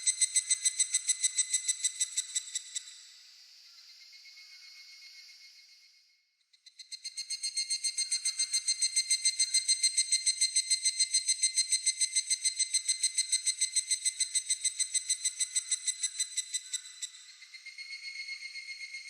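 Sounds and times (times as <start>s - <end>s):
cicada calling: 0.0s - 2.8s.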